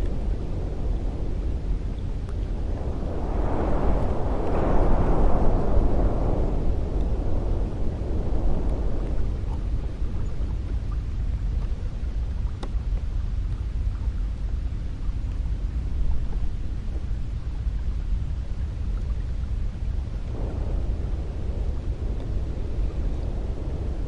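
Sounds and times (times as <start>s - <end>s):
wind gust rushing: 0.0s - 10.7s, 20.2s - 24.0s
cold wind blowing: 0.0s - 24.0s.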